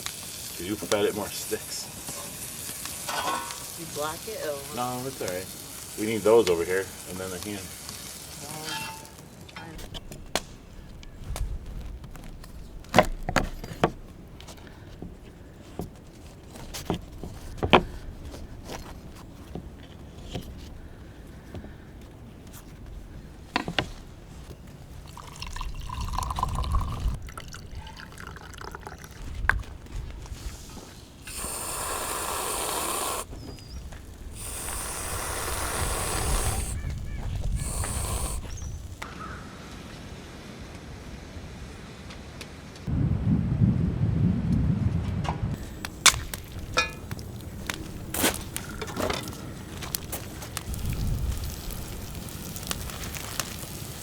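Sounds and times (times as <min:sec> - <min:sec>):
steady hissing: 0:00.0 - 0:09.2, 0:09.8 - 0:27.2, 0:28.2 - 0:39.1, 0:45.6 - 0:54.0
campfire crackling: 0:00.0 - 0:39.1, 0:45.6 - 0:54.0
fire popping: 0:00.0 - 0:39.1, 0:45.5 - 0:54.0
low rumble: 0:42.9 - 0:45.6.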